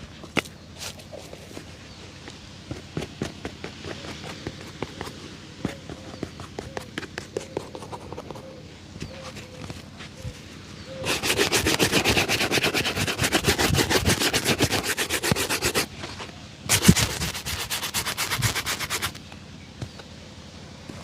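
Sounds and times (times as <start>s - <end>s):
shoe being buffed with rubbing strokes: 2.7s - 10.4s, 11.0s - 19.2s.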